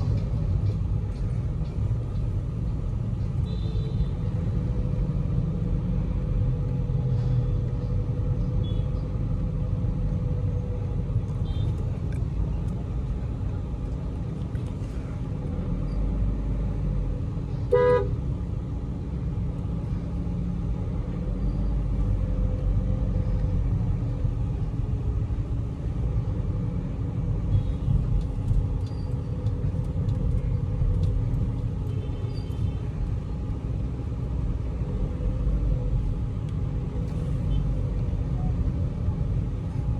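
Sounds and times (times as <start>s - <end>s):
road and engine rumble in car: 0.0s - 39.9s
car horn toot: 17.7s - 18.1s.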